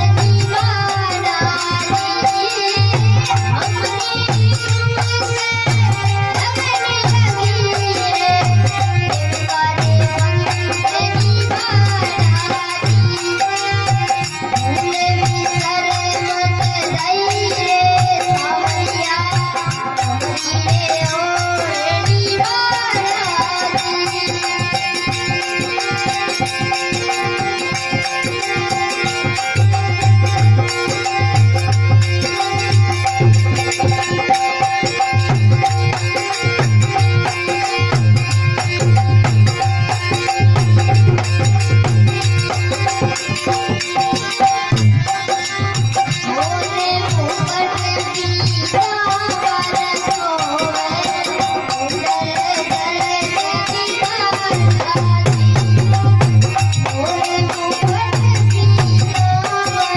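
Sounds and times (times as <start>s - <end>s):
jingling percussion: 0.0s - 59.9s.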